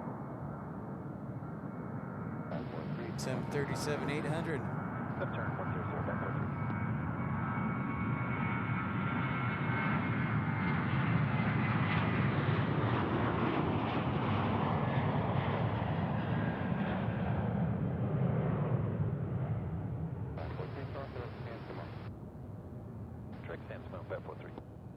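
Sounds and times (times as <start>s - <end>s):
jet engines rumbling: 0.0s - 24.7s
high whine: 2.5s - 6.8s.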